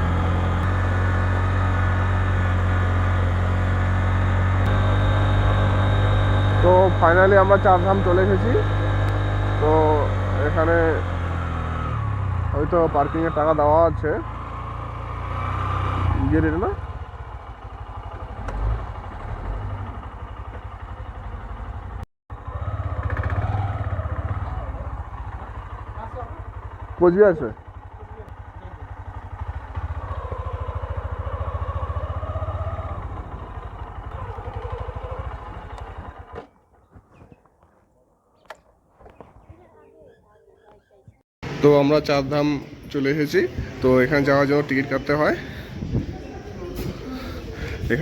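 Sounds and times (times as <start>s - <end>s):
motorcycle engine drone: 0.0s - 37.0s, 41.4s - 48.0s.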